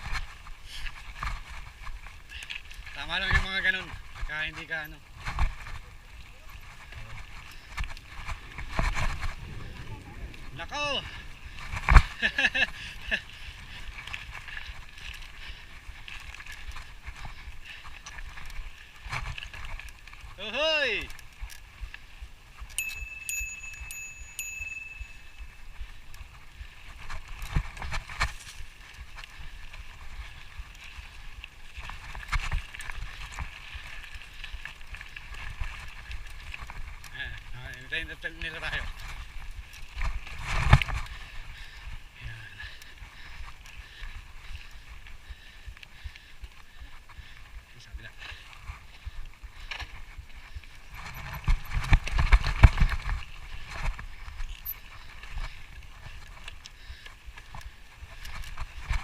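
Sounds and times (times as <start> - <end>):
wind rumbling on microphone: 0.0 - 59.0
tyres rumbling on dirt: 3.0 - 14.9
wind on microphone: 5.2 - 12.4
bike rattling and knocking: 21.3 - 42.5, 49.5 - 59.0.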